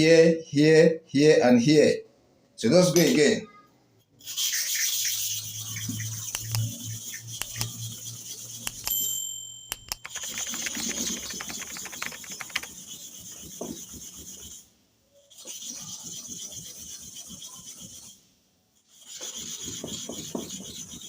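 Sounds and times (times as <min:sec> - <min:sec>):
metal blade scraping on sharpening stone: 0:04.4 - 0:10.8.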